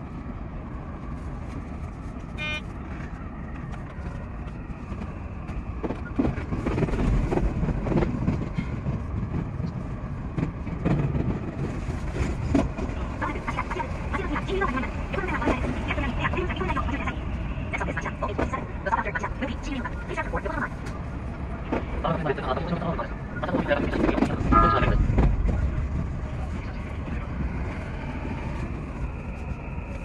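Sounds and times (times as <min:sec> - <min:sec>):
train rumble and rail knocks: 0:00.0 - 0:30.0
brief pitched toot: 0:02.4 - 0:02.6.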